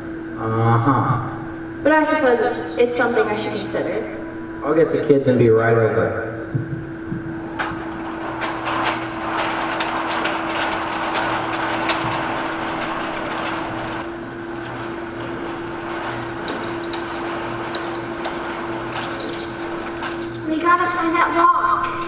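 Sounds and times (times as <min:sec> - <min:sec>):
low hum under hiss: 0:00.0 - 0:22.0
knocks and clatters: 0:06.5 - 0:21.0.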